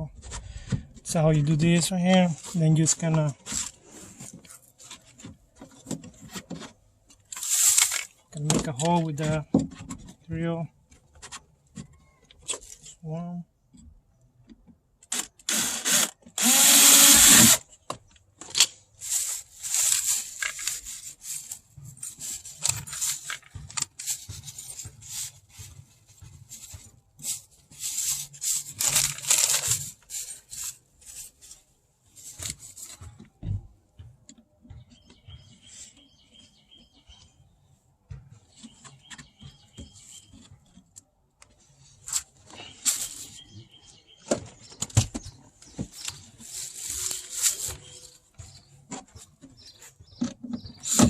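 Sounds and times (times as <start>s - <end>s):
scraping and handling noises: 0.0s - 13.0s, 17.0s - 51.0s
power drill burst: 15.1s - 17.6s.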